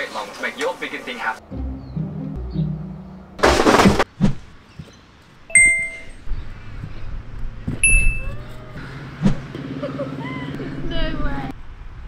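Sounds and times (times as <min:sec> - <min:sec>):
bright ringing dings: 0:05.5 - 0:06.2, 0:07.8 - 0:08.3.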